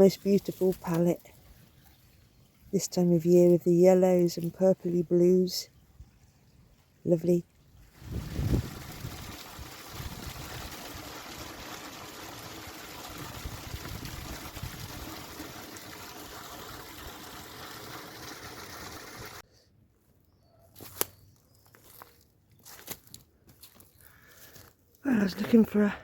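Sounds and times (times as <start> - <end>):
stream water running: 7.6 - 19.4
wind buffeting microphone: 7.8 - 11.0, 13.1 - 15.2.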